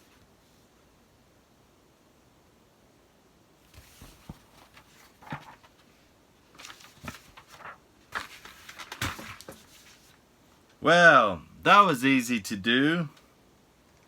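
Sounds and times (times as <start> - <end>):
paper pages rustling: 3.6 - 10.2.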